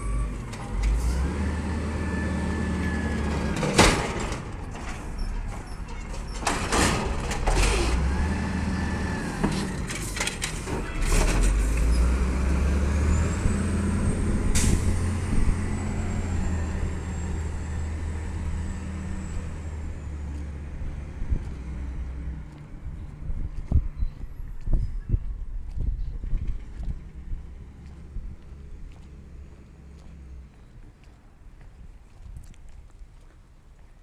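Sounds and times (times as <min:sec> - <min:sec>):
garbage truck diesel engine: 0:00.0 - 0:22.9.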